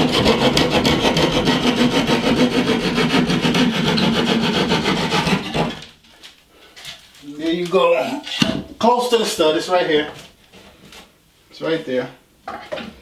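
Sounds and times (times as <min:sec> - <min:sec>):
saw cutting through drywall: 0:00.0 - 0:06.0.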